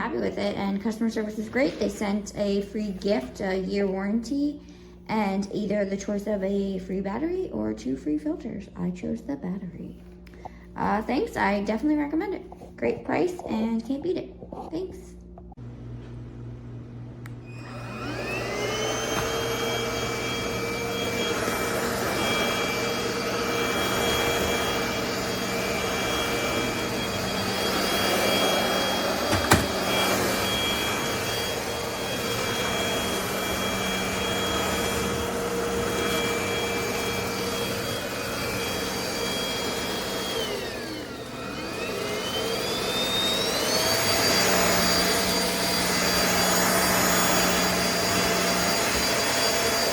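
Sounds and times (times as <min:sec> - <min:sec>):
vacuum motor whining: 0:17.2 - 0:49.9.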